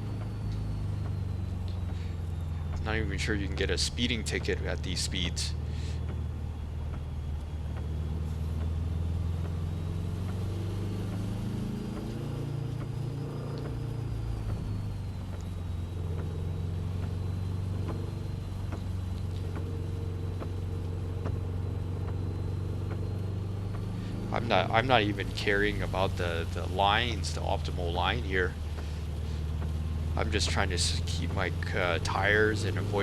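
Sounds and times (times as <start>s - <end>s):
car engine running: 0.0s - 33.0s
faint ticks: 14.5s - 16.4s.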